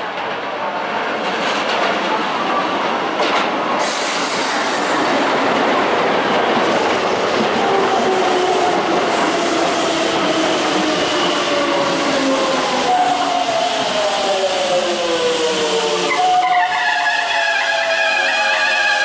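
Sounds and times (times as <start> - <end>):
train wheels clattering on rails: 0.0 - 12.2.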